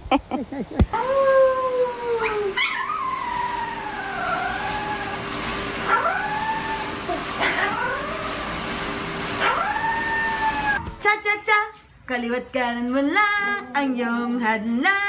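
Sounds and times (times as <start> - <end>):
dog howling: 0.9 - 8.4, 9.4 - 10.8.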